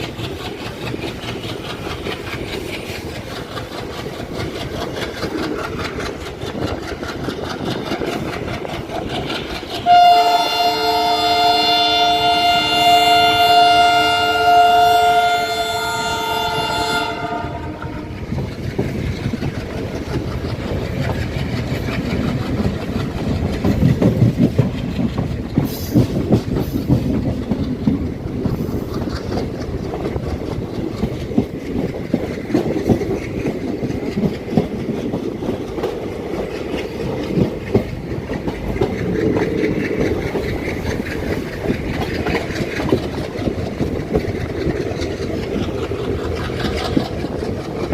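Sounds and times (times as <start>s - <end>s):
train rumble: 0.0s - 47.9s
wheels clicking over rail joints: 0.0s - 47.9s
train horn chord: 9.8s - 18.2s.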